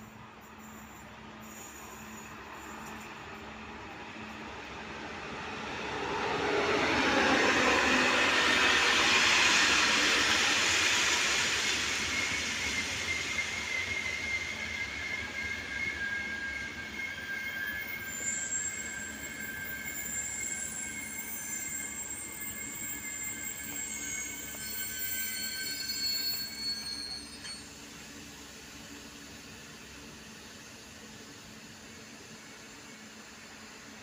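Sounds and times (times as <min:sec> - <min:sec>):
train rolling past: 0:00.0 - 0:34.0
high-pitched wheel squeal: 0:06.6 - 0:27.7.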